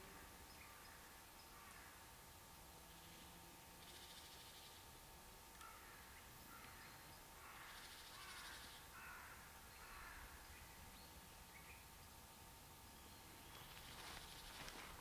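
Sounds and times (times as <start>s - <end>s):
faint bird calls: 0.0s - 2.1s, 5.6s - 12.1s.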